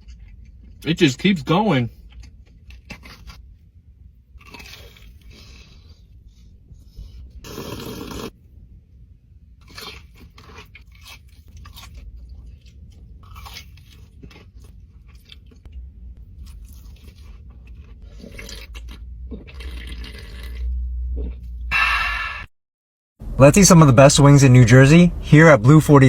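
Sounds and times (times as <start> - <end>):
crunching and chewing crisp food: 0.0 - 6.1, 9.6 - 21.6.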